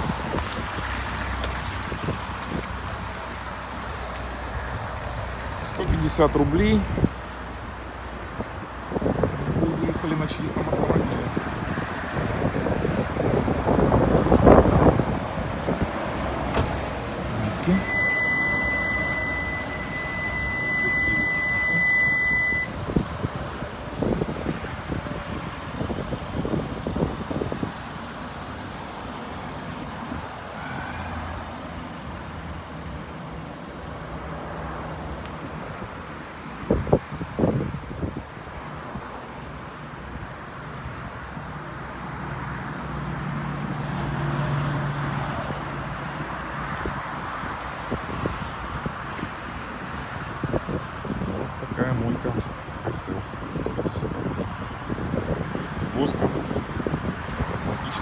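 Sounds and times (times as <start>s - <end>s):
wind noise: 0.0s - 3.8s, 4.5s - 31.4s, 33.9s - 44.0s, 45.1s - 58.0s
car engine humming: 12.9s - 47.7s
high-pitched electronic beep: 17.5s - 22.7s.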